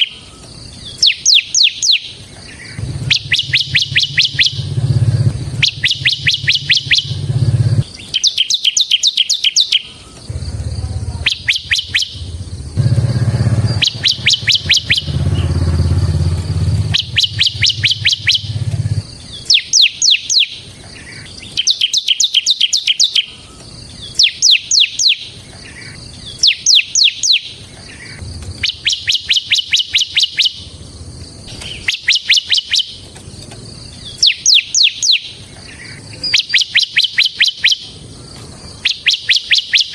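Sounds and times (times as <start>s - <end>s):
bird singing rapid rattling notes: 0.0s - 39.9s
low rumble: 2.8s - 5.8s, 6.4s - 7.8s, 10.3s - 19.1s, 28.2s - 28.8s.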